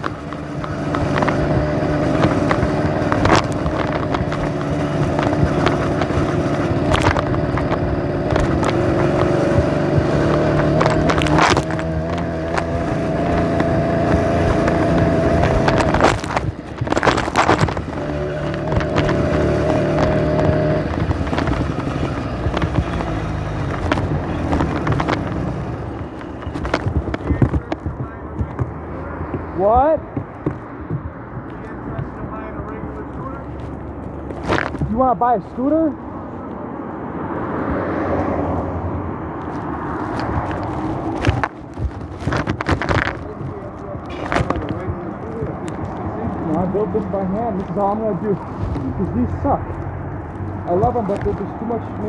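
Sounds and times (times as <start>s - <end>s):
small bicycle engine running: 0.0s - 28.7s
sharp clacks: 0.0s - 36.0s.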